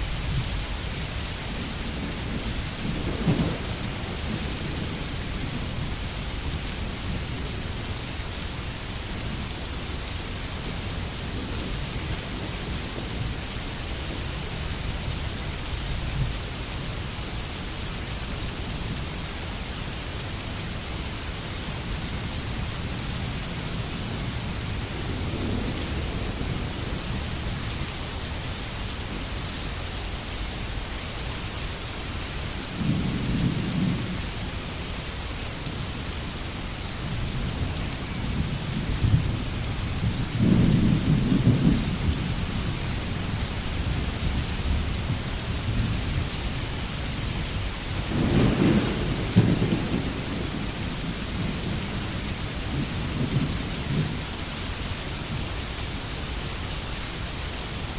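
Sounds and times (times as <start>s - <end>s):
low rolls of thunder: 0.0s - 6.1s, 24.6s - 27.6s, 37.4s - 46.4s, 47.9s - 54.3s
steady rain falling: 0.0s - 57.9s.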